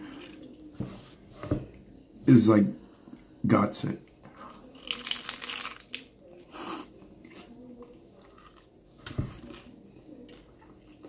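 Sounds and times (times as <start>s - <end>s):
crunching crisp taco shell: 4.4s - 11.0s.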